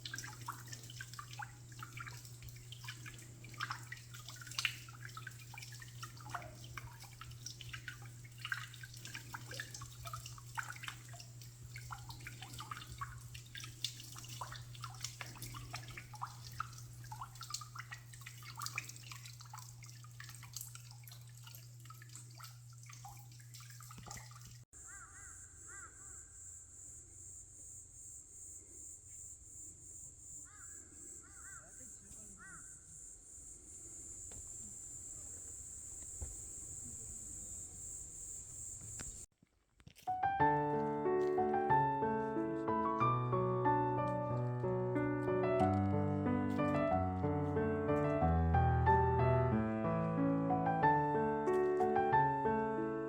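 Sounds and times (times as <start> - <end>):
water dripping and trickling: 0.0 - 24.7, 51.4 - 52.1
insects chirping: 0.0 - 39.3.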